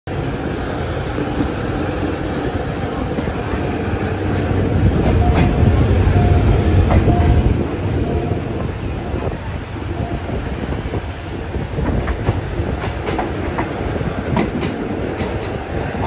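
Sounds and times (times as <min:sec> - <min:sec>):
train wheels rumbling on rails: 0:00.1 - 0:16.0
sharp clacks of rails: 0:14.3 - 0:15.6.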